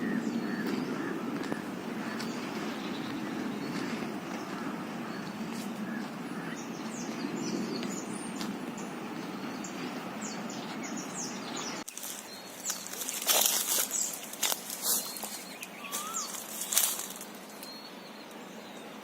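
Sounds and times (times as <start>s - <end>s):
small birds chirping: 0.0s - 19.0s
loud rustling bursts: 11.8s - 17.6s.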